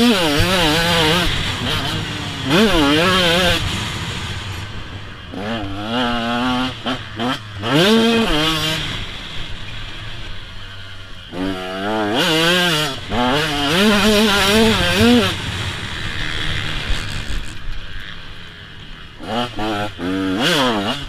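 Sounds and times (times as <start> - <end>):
motocross bike engine revving: 0.0 - 21.0.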